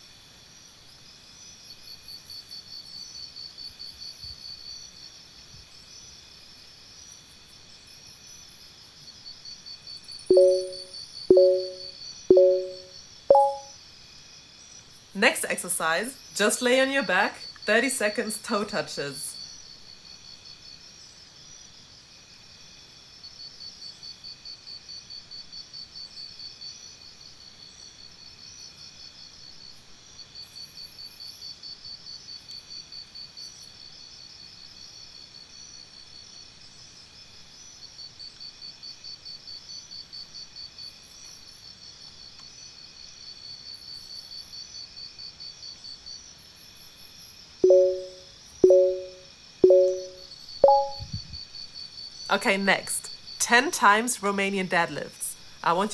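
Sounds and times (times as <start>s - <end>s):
electronic timer beep: 10.3s - 13.6s, 47.6s - 51.0s.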